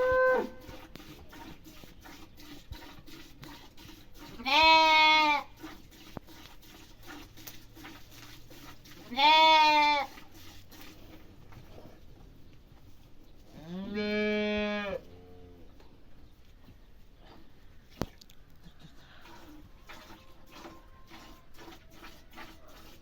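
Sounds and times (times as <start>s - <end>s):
farm animal bleating: 4.3s - 5.5s, 9.0s - 10.1s, 13.5s - 15.7s.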